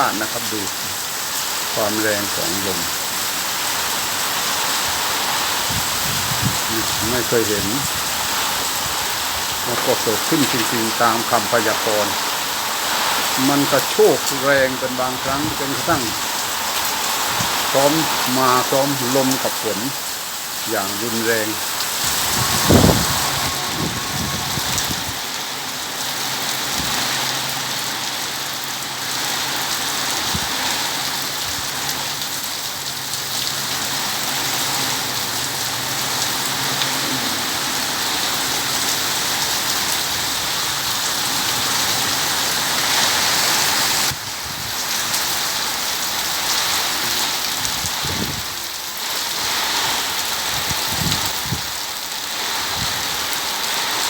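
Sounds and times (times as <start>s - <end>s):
heavy rain pouring: 0.0s - 54.0s
strong gusting wind: 3.8s - 10.6s, 15.2s - 18.3s, 21.4s - 27.3s, 30.2s - 31.7s, 39.3s - 45.0s, 47.5s - 48.7s, 49.4s - 53.3s.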